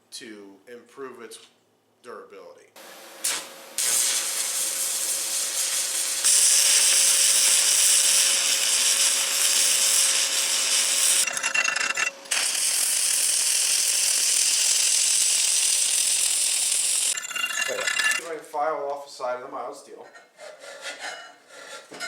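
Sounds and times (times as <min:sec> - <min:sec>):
welding arc crackling: 0:03.1 - 0:18.3.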